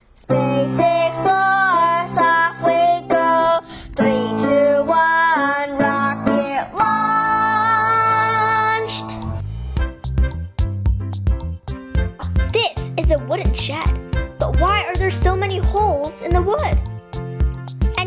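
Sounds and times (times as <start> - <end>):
guitar: 0.2 - 18.0
person singing: 0.3 - 9.3.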